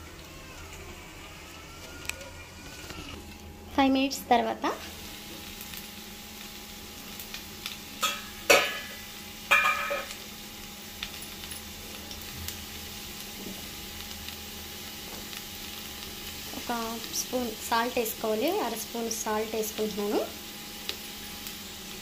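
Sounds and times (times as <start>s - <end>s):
potatoes sizzling in oil: 0.0s - 22.0s
utensil clanking and scraping pan: 8.0s - 10.2s.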